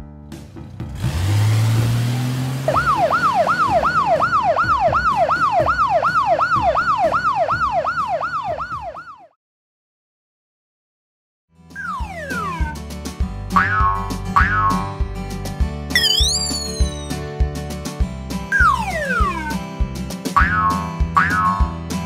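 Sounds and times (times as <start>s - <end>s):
siren sweeping up and down: 2.7s - 9.3s, 11.8s - 12.8s, 16.0s - 17.2s, 18.6s - 19.6s.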